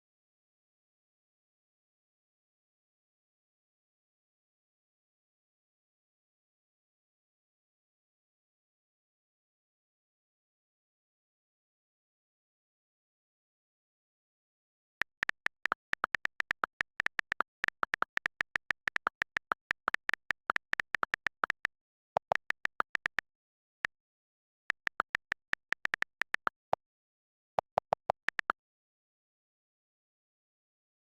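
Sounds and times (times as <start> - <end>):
rapid keyboard typing: 15.0 - 23.3, 24.7 - 26.8, 27.6 - 28.6.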